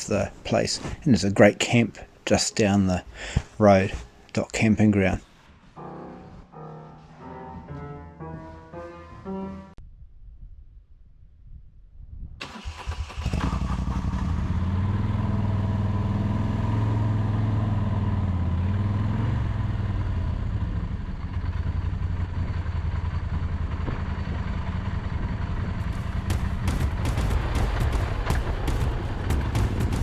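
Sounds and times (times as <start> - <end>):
motorcycle engine starting and running: 12.4 - 30.0.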